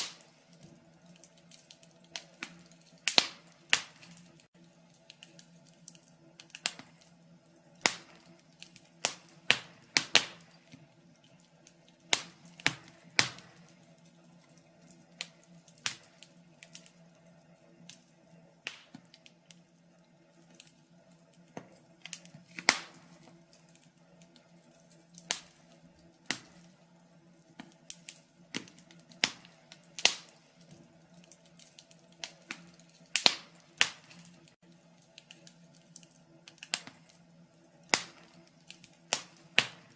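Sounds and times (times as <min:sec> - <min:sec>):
log fire crackling: 0:00.0 - 0:39.9.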